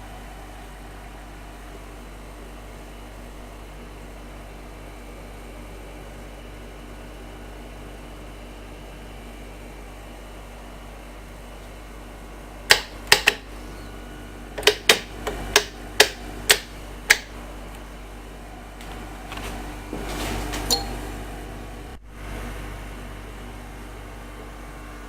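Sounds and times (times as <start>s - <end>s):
steady low hum: 0.0s - 25.0s
sewing machine mechanical clicks: 12.7s - 13.5s, 14.6s - 17.3s.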